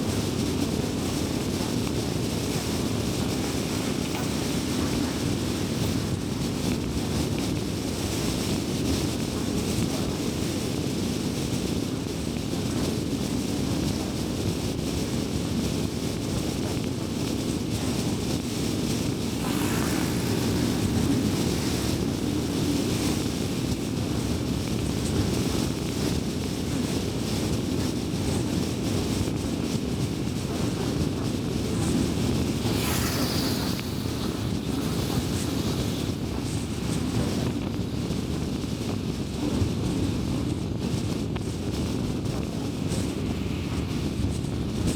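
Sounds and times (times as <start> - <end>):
road and tyre noise: 17.8 - 25.5, 31.0 - 37.9
brief whooshes: 19.3 - 23.4, 32.6 - 36.3.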